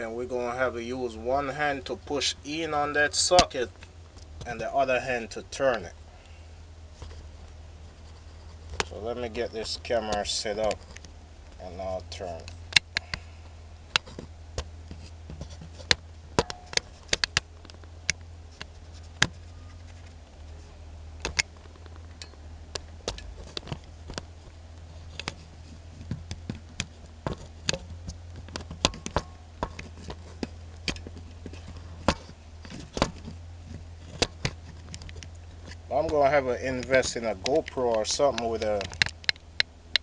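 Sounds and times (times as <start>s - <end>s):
steady low hum: 0.0s - 40.0s
metal tool clicks and taps: 36.8s - 40.0s.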